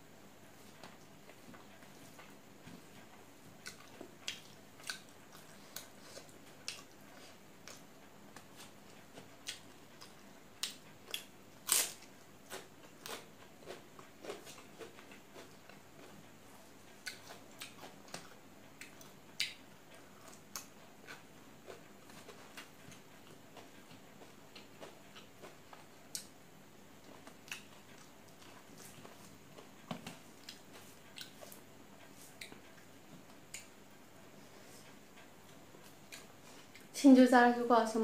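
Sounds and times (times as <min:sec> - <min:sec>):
person chewing crunchy food: 0:03.6 - 0:26.4, 0:27.0 - 0:33.7.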